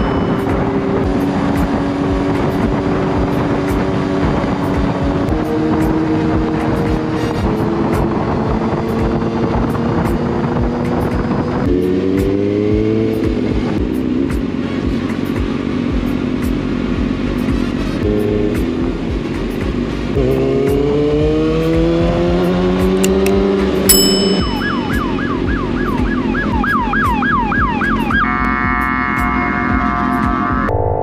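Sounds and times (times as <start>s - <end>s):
vehicle engine accelerating: 0.0s - 23.9s
road noise: 0.0s - 30.7s.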